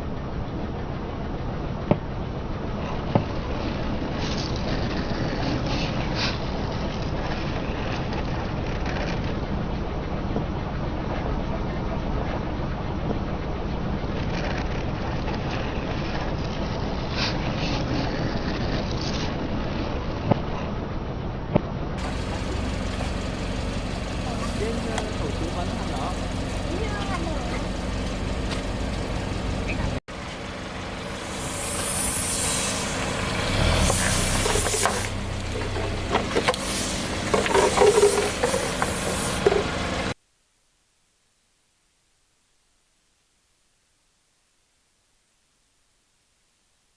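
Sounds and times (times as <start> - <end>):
car engine running: 22.0 - 40.2.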